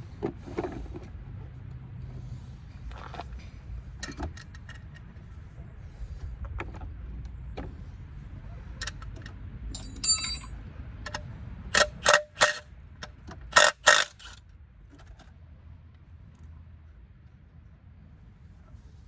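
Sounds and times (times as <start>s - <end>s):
metal tools clinking: 9.8s - 10.5s, 11.8s - 12.6s, 13.6s - 14.4s
sharp metal knocks: 9.8s - 10.5s, 11.8s - 12.6s, 13.6s - 14.4s.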